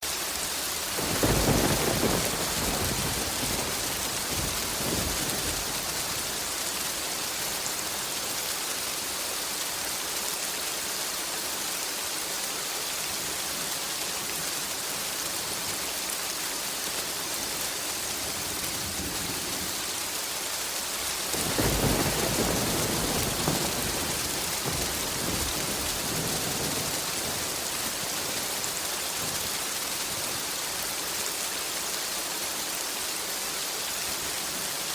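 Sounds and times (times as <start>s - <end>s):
heavy rain: 0.0s - 34.9s
thunder rumbling: 0.9s - 7.0s, 21.3s - 30.6s.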